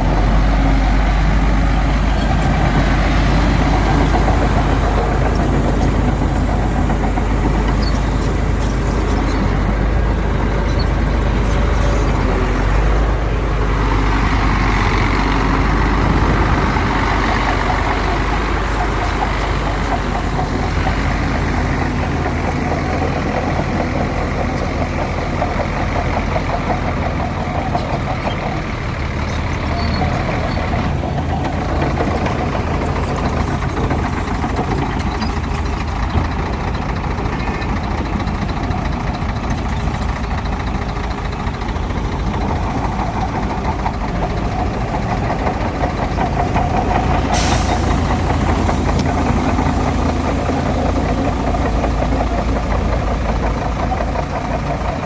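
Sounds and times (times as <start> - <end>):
heavy diesel engines running: 0.0 - 55.0
air hiss: 47.3 - 51.4.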